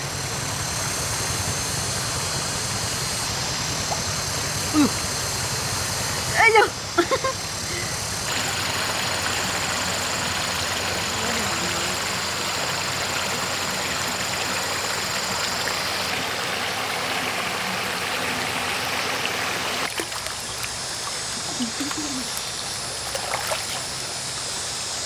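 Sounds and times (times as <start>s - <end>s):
stream water rushing: 8.2s - 24.9s.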